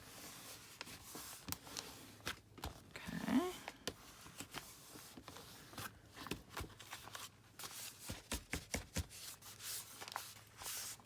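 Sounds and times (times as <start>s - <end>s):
paper rustling and rubbing: 4.0s - 11.0s.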